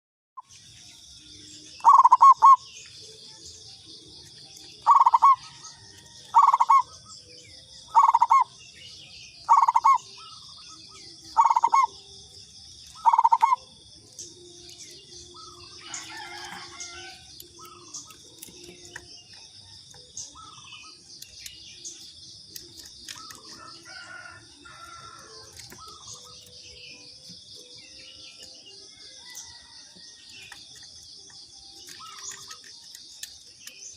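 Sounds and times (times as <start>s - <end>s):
birds chirping: 0.4s - 33.9s
dove cooing: 1.8s - 2.7s, 4.8s - 7.2s, 7.8s - 8.6s, 9.5s - 12.1s, 12.9s - 13.8s, 22.6s - 26.6s.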